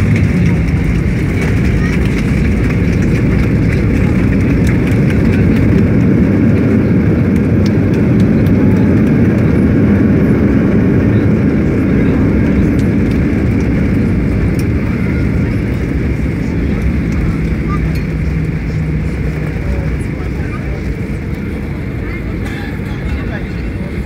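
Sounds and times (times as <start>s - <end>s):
jet engines rumbling: 0.0s - 24.0s
rushing wind: 0.0s - 24.0s
faint clicks: 12.8s - 15.9s.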